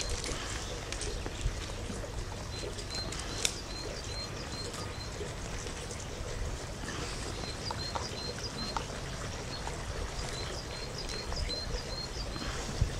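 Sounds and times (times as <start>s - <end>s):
small bird chirping: 2.5s - 5.3s, 7.2s - 12.5s.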